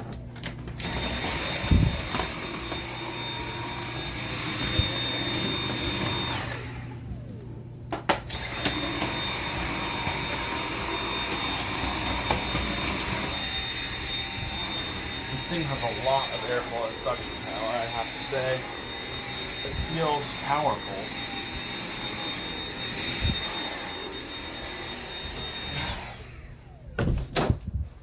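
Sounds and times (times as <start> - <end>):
cordless vacuum motor whine: 0.0 - 27.4.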